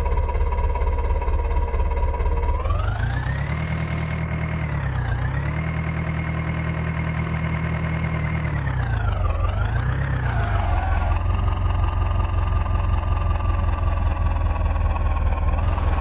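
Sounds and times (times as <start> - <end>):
diesel engine revving: 2.3 - 6.4, 7.9 - 16.0.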